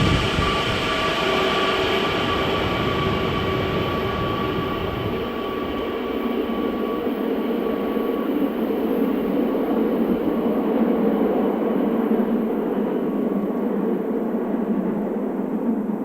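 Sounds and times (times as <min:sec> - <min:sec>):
train wheels rumbling on track: 0:00.0 - 0:06.1.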